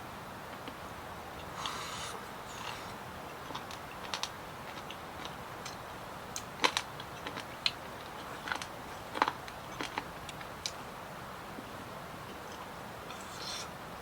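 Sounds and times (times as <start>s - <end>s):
steady background hiss: 0.0s - 14.0s
chewing: 6.6s - 10.8s, 12.5s - 13.7s.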